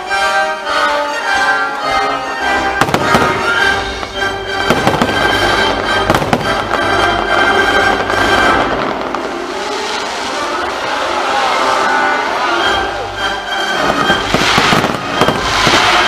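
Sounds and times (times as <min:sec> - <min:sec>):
music soundtrack: 0:00.0 - 0:16.0
firework bangs: 0:02.8 - 0:12.4, 0:13.8 - 0:16.0.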